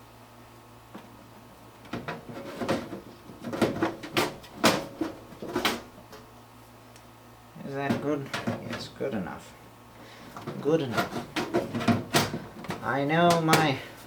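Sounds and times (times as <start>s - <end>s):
steady low hum: 0.0s - 14.0s
computer parts knocking and clattering: 1.8s - 6.2s, 7.8s - 9.0s, 10.4s - 13.8s.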